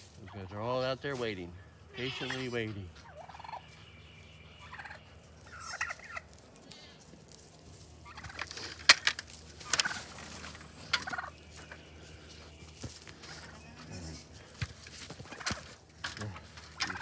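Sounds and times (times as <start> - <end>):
goats bleating: 1.9 - 2.7.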